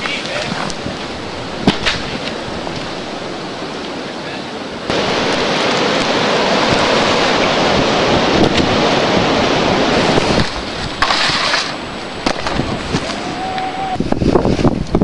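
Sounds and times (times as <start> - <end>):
snowboard sliding over snow: 0.0 - 15.0
wind on microphone: 0.0 - 15.0.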